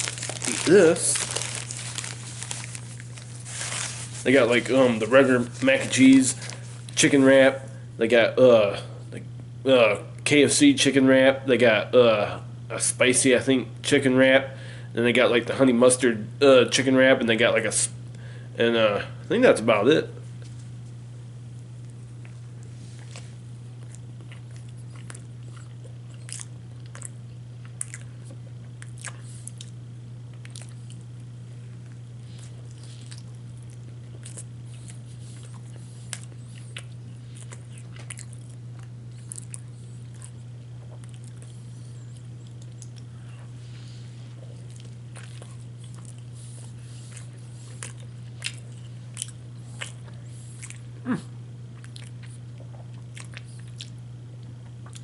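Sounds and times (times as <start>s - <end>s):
mouth clicks and smacks chewing: 51.8s - 55.0s.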